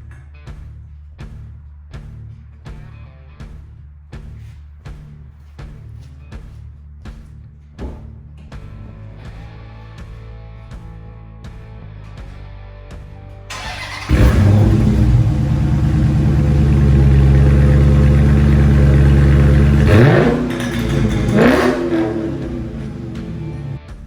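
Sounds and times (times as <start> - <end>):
car engine starting and idling: 13.5 - 23.9
engine throttle blips: 13.5 - 23.9.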